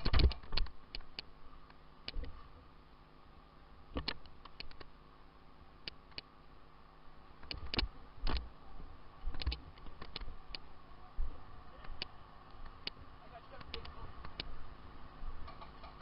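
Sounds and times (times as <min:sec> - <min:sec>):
sharp clicks and knocks: 0:00.0 - 0:02.4, 0:03.9 - 0:04.9, 0:07.4 - 0:08.5, 0:09.2 - 0:10.7, 0:15.4 - 0:16.0.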